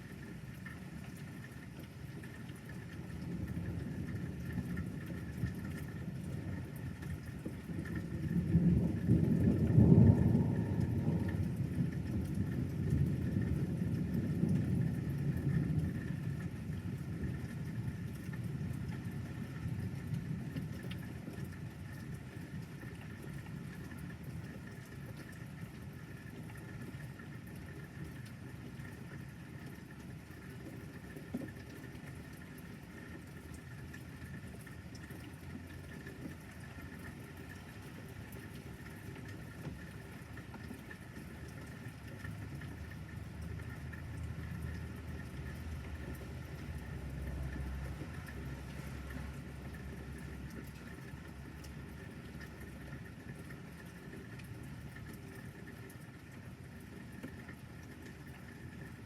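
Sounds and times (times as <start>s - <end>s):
thunder rumbling: 3.0s - 21.8s.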